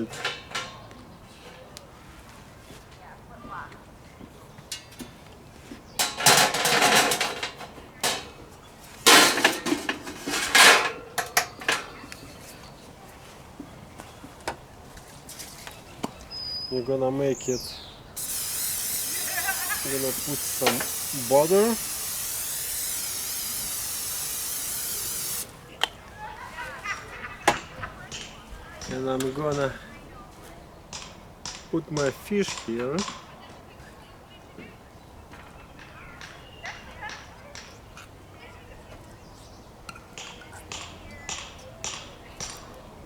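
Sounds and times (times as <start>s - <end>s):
metal parts clanking and rattling: 0.0s - 0.8s, 6.0s - 8.4s, 9.0s - 11.9s
aerosol spray hissing: 18.2s - 25.5s.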